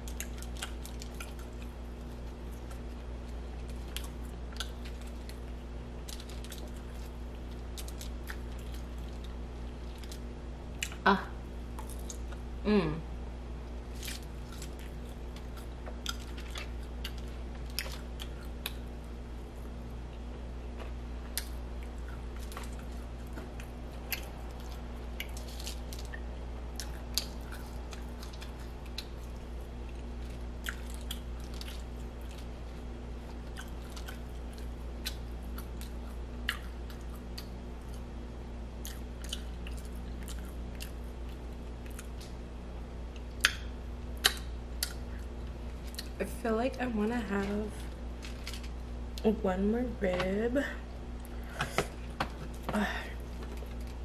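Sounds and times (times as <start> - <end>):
person chewing: 0.0 - 11.0, 13.8 - 38.1, 38.8 - 42.4, 43.0 - 46.2
steady low hum: 0.0 - 54.0
mouth clicks and smacks: 43.2 - 45.2.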